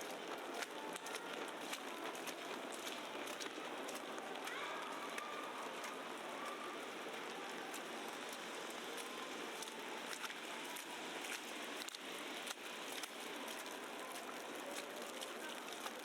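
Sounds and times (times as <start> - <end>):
light ticks of snow: 0.0 - 16.0
steady snowfall hiss: 2.0 - 16.0.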